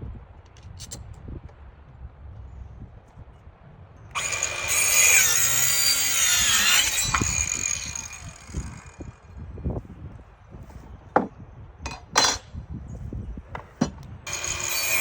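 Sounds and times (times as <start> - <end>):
circular saw cutting wood: 4.2 - 9.2, 14.3 - 15.0.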